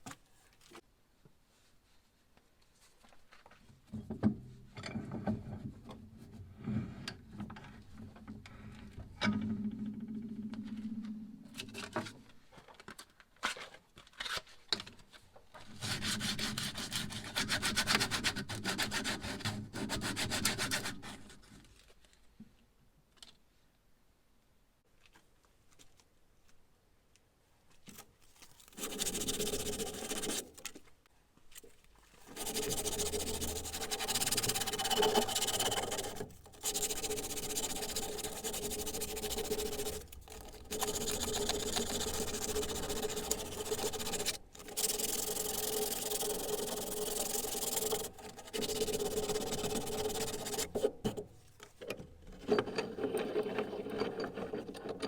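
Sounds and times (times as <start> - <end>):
small power tool grinding: 28.8 - 30.6, 32.3 - 51.3.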